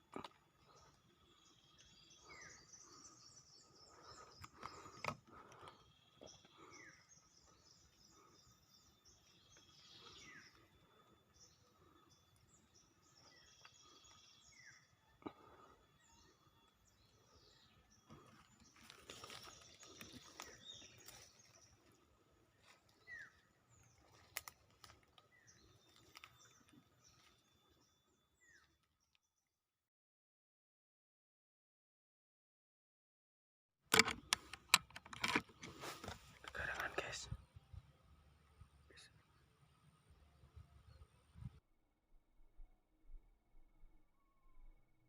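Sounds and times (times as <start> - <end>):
small birds chirping: 0.0 - 29.3, 33.9 - 41.6
sharp clicks: 33.9 - 37.0.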